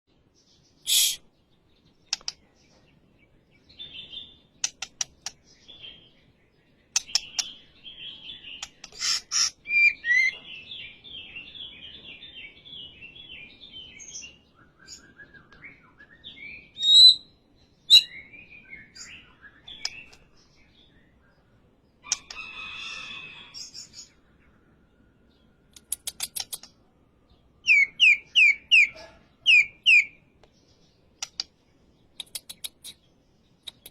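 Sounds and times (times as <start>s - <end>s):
bird singing trills and whistles: 0.7s - 1.4s, 6.9s - 22.4s, 23.3s - 30.2s
sharp clicks: 2.0s - 2.4s, 4.6s - 5.4s, 7.0s - 7.5s, 25.7s - 26.8s, 31.2s - 31.6s, 32.2s - 33.0s, 33.6s - 33.9s.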